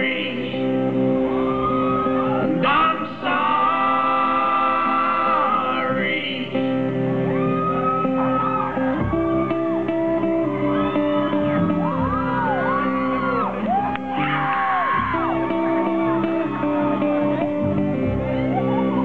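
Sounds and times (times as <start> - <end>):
voices whooping and shouting: 1.2 - 2.6, 7.3 - 19.0
folk-rock band playing: 6.6 - 19.0.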